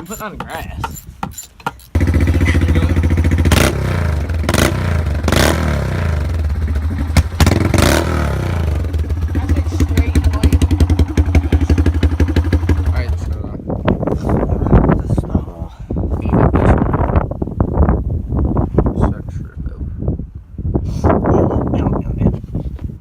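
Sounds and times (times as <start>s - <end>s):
dirt bike engine: 0.0s - 13.4s.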